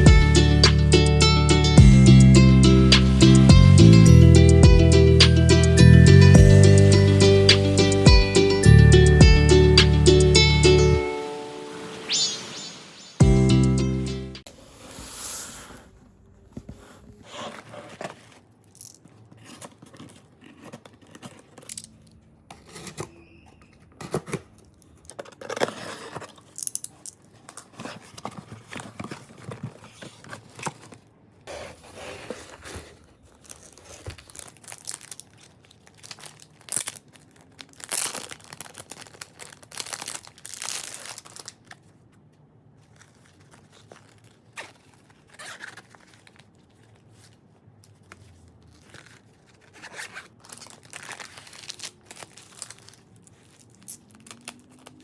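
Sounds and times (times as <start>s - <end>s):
rustling and handling noises: 16.2s - 55.0s
packaging tearing and crinkling: 24.1s - 31.1s, 31.8s - 42.0s, 42.8s - 55.0s.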